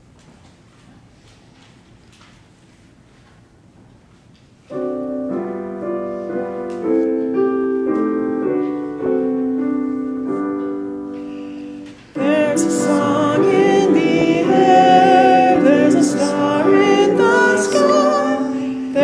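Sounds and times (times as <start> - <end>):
piano playing hymn chords: 4.7 - 19.0.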